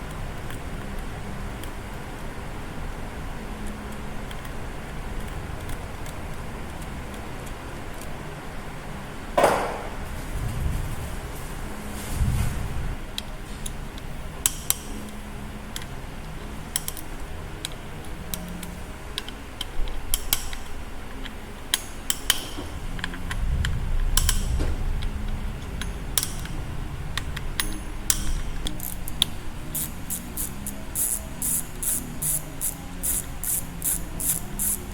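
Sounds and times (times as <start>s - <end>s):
low rumbling handling noise: 9.3s - 13.8s, 22.1s - 31.0s
metallic clicks of hand tools: 16.7s - 17.0s, 27.6s - 34.9s.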